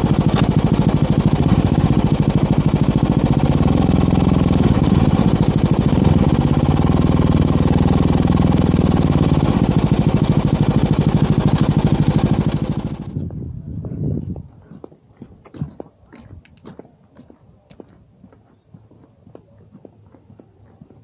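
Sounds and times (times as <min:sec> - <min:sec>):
motorcycle engine idling: 0:00.0 - 0:13.2.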